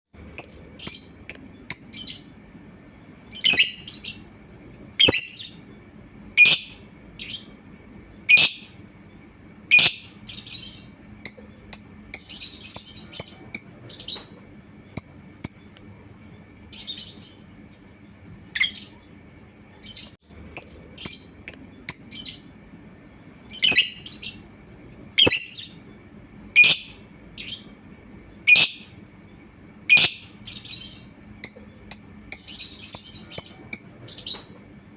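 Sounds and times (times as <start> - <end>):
lovebird chirping: 0.2 - 2.3, 3.2 - 4.3, 5.0 - 5.6, 6.4 - 7.5, 8.3 - 8.8, 9.7 - 14.3, 14.9 - 15.7, 19.8 - 22.5, 23.5 - 24.4, 25.2 - 25.8, 26.6 - 27.7, 29.9 - 34.4.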